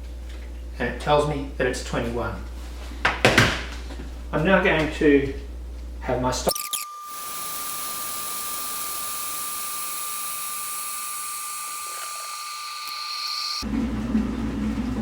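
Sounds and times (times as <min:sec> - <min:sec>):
thin high tone: 0:06.5 - 0:13.6
electric kettle heating water: 0:06.8 - 0:11.6.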